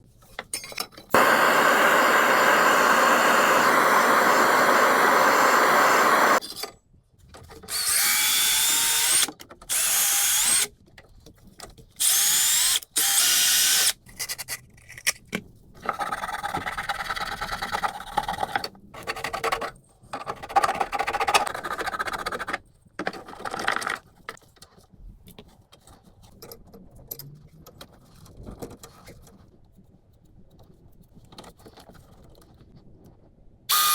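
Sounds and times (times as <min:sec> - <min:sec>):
power tool whining: 0:01.2 - 0:06.4, 0:07.7 - 0:10.6.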